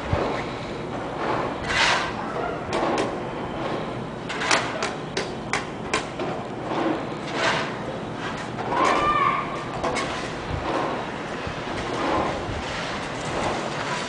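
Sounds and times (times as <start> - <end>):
short scraping swishes: 1.3 - 2.2.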